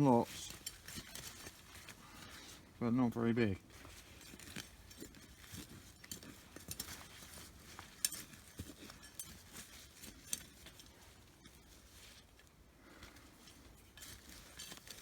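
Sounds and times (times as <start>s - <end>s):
scraping and clicking of earth: 0.0s - 2.7s, 3.6s - 15.0s.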